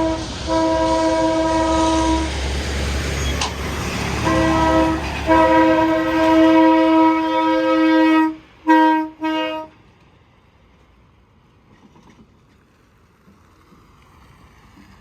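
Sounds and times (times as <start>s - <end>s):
truck air horn blasts: 0.0s - 2.4s, 4.2s - 9.8s
low traffic rumble: 0.0s - 15.0s.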